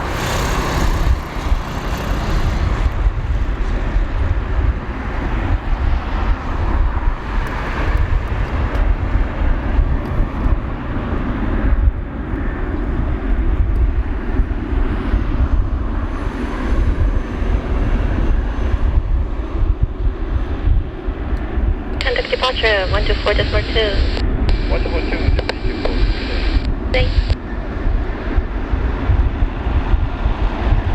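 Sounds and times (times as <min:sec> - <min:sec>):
jet engines rumbling: 0:21.5 - 0:30.9.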